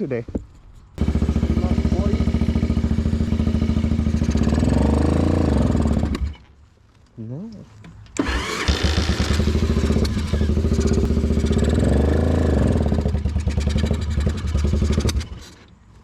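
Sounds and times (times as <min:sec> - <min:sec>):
motorcycle electric starter cranking: 0:08.2 - 0:11.7, 0:12.9 - 0:15.8.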